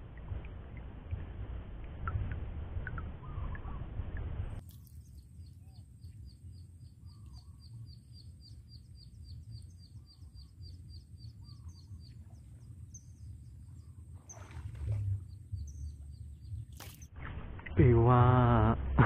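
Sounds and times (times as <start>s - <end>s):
steady low rumble: 0.0s - 19.0s
lower bird calls: 2.9s - 3.9s, 4.9s - 17.1s.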